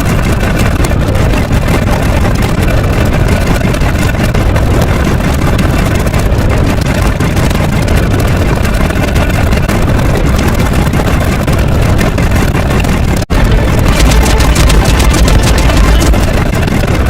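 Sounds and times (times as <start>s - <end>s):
loud steady low rumble: 0.0s - 17.0s.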